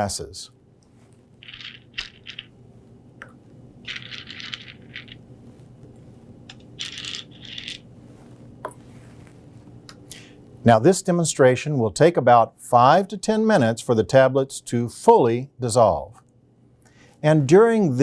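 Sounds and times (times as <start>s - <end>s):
tablets clicking and rattling: 1.4s - 2.5s, 3.8s - 5.2s, 6.5s - 7.9s.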